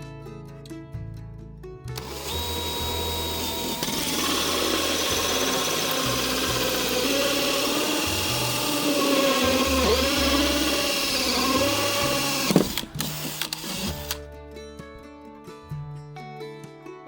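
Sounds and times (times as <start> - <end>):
music: 0.0 - 17.0
power drill running under load: 2.0 - 14.2.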